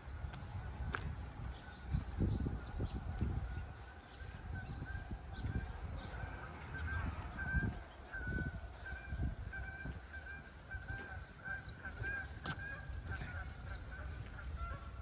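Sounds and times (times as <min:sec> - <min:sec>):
bird calling: 0:01.4 - 0:15.0
walking footsteps thudding: 0:10.8 - 0:13.4.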